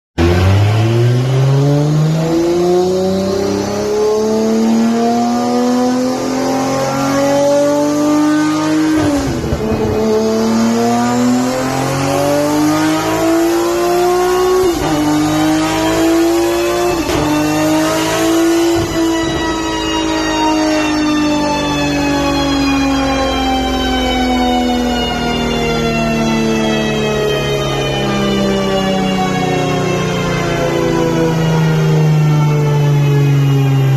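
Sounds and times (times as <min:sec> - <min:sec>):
car engine pulling hard: 0:00.2 - 0:23.0.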